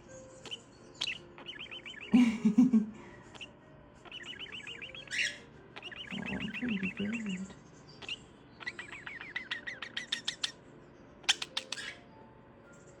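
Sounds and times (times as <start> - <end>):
budgerigar chattering: 0.4 - 2.2, 3.3 - 10.6, 11.2 - 12.0.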